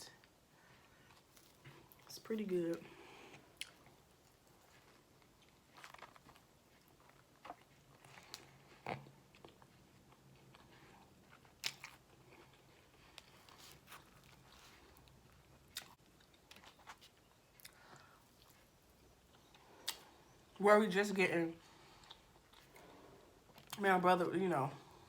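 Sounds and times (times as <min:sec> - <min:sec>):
mouth chewing food: 0:02.8 - 0:20.6.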